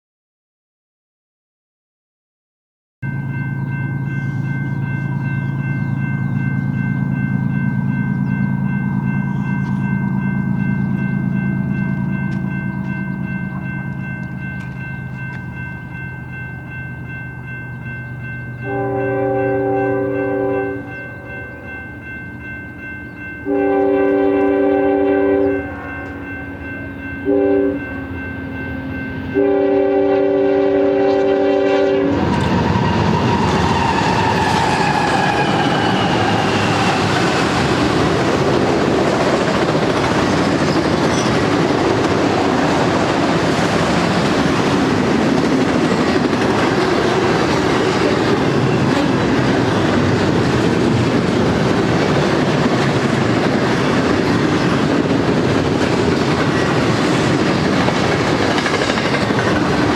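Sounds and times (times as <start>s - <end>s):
locomotive air horn blasts: 18.6s - 21.7s, 23.5s - 26.3s, 26.9s - 27.9s, 29.3s - 36.1s
train cars rumbling over rail joints: 32.0s - 59.9s.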